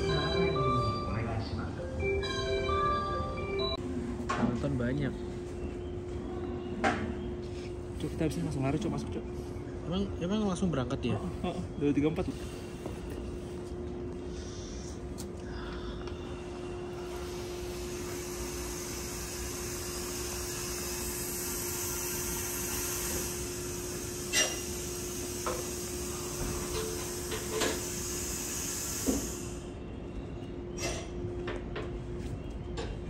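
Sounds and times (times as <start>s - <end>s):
train brake hiss: 16.8s - 29.7s.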